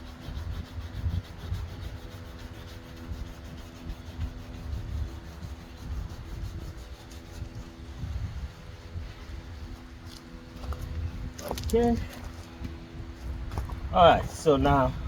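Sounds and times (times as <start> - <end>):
sanding pad rubbing on plastic: 0.0 - 10.4.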